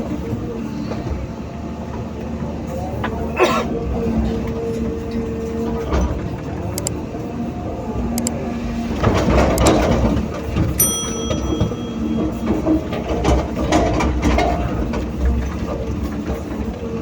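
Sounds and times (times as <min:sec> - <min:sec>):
metal clanks and clatter: 0:09.4 - 0:16.8
ringing metal clang: 0:10.8 - 0:12.8.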